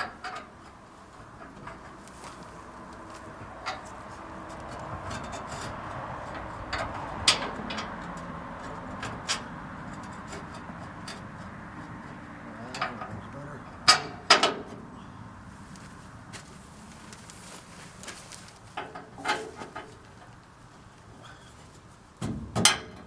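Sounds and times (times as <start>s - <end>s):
sharp knocks and clicks: 0.0s - 14.8s.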